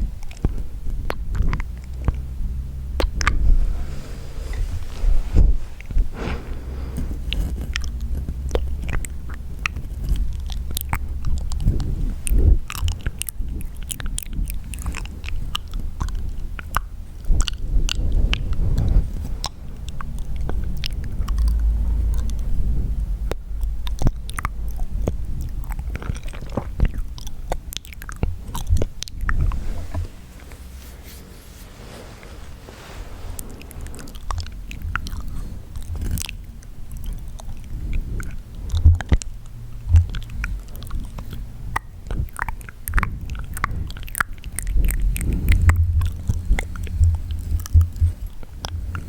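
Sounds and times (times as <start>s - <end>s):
low rumble: 0.0s - 49.0s
wet mouth clicks and smacks: 7.1s - 22.6s, 23.3s - 29.6s, 34.0s - 49.0s.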